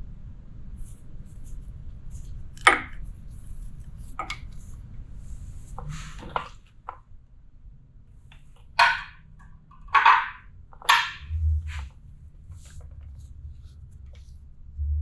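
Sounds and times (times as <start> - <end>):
low steady rumble: 0.0 - 15.0
metal tools knocking and clinking: 8.8 - 11.3.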